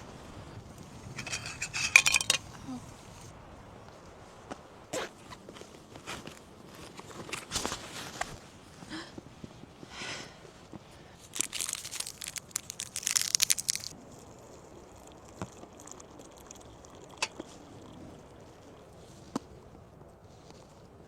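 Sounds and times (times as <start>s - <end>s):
dense crunching and crackling: 11.1s - 14.9s.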